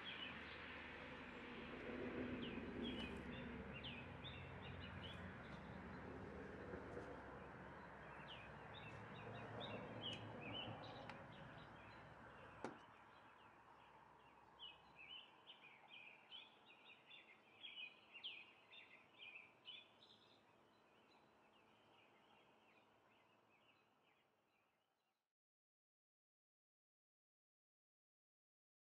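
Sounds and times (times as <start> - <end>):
small birds chirping: 2.4 - 6.0, 7.8 - 24.2.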